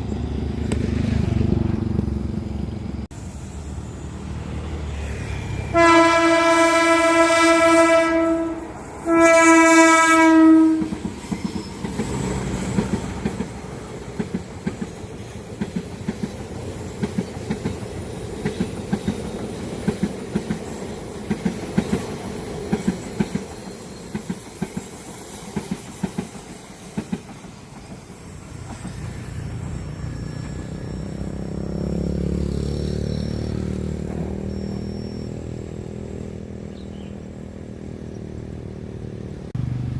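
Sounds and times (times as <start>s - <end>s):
train horn blasts: 5.0s - 11.0s
train wheels clickety-clack: 10.6s - 34.9s.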